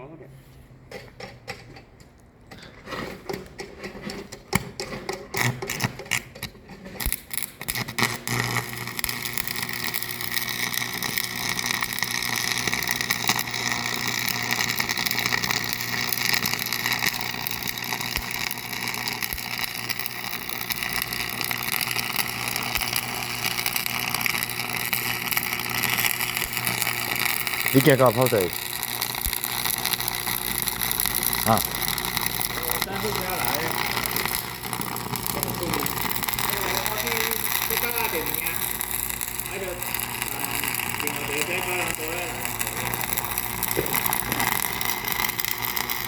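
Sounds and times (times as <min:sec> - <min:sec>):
scattered clicks and knocks: 0:00.9 - 0:07.2
machine humming: 0:08.1 - 0:46.0.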